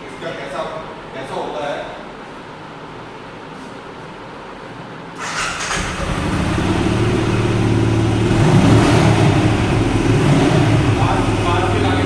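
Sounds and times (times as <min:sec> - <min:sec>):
motorcycle engine revving: 0:05.2 - 0:12.0.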